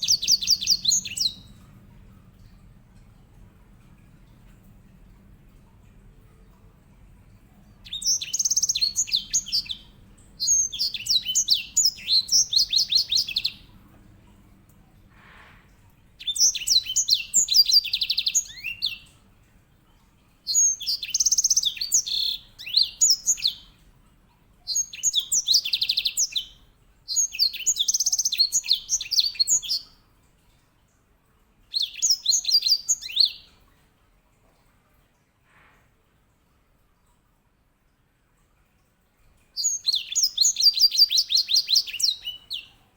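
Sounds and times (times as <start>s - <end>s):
finch singing trills: 0.0s - 1.5s, 7.9s - 13.7s, 16.2s - 19.1s, 20.5s - 23.7s, 24.7s - 29.9s, 39.6s - 42.8s.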